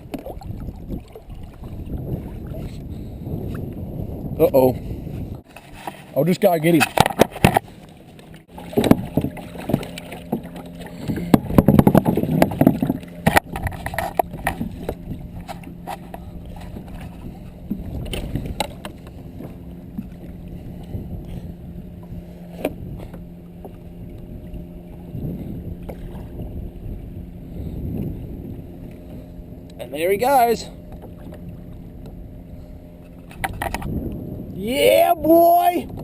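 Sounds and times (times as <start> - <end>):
knocks and clatters against kayak hull: 0.0 - 3.8, 5.2 - 27.0, 30.8 - 32.2, 32.9 - 34.3
wind noise: 0.0 - 6.0, 10.9 - 36.0
steady low hum: 0.0 - 34.6
water noise: 0.0 - 36.0.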